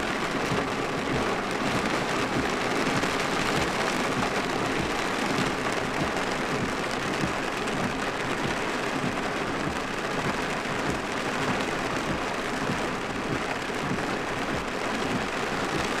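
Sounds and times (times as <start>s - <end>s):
heavy rain on vehicle roof: 0.0s - 16.0s.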